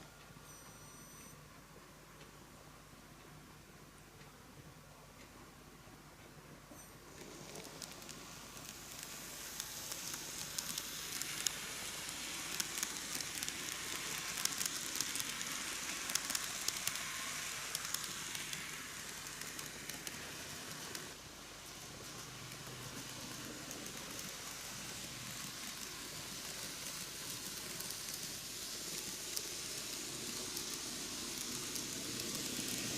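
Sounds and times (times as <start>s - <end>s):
model train rolling on track: 7.0s - 32.9s.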